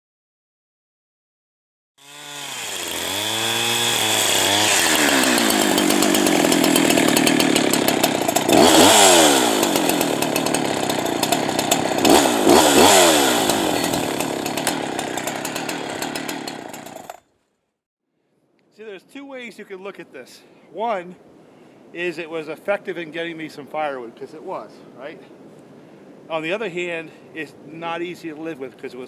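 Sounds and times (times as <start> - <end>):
chainsaw revving: 2.0 - 17.2.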